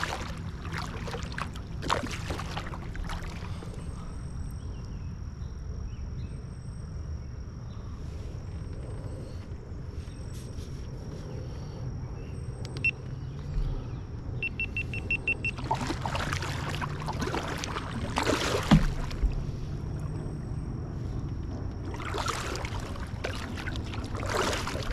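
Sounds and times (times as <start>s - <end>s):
kayak paddle splashing water: 0.0s - 4.0s, 14.8s - 20.2s, 21.8s - 24.9s.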